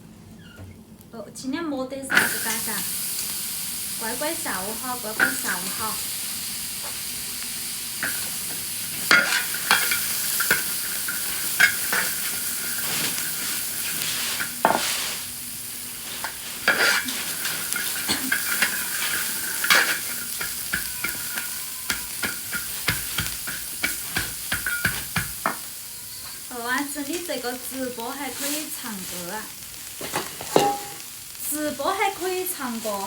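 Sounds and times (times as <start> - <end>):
peppers sizzling in a wok: 1.6 - 33.0
spatula scraping a wok: 5.1 - 6.0, 8.0 - 33.0.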